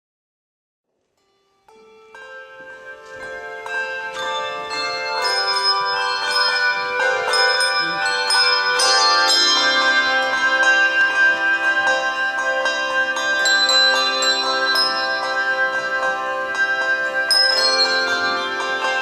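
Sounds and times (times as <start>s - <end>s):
handbell choir playing: 1.5s - 19.0s.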